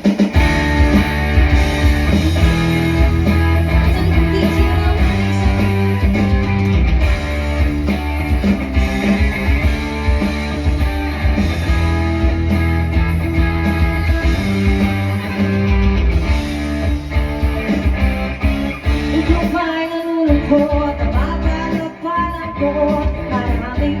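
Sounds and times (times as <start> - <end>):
guitar: 0.0 - 24.0
live band playing: 0.0 - 24.0
low bass line: 0.4 - 19.6.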